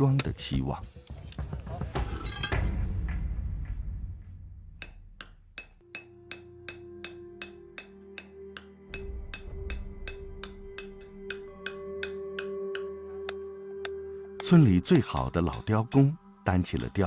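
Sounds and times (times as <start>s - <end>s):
background music: 0.0s - 17.0s
hammer striking chisel into stone: 9.3s - 15.2s.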